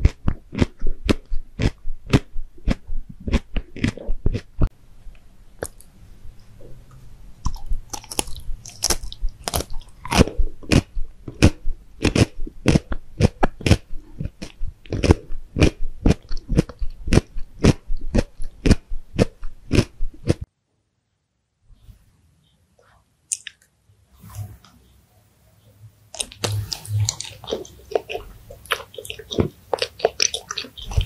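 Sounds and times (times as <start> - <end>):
chewing crunchy food: 0.0 - 4.7, 7.4 - 20.4, 26.2 - 31.0.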